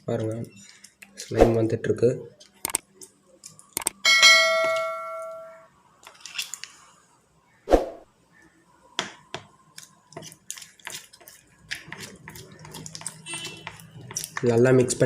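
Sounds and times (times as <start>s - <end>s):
ringing tone: 4.0s - 5.7s
slime stirring taps and clicks: 9.0s - 14.6s.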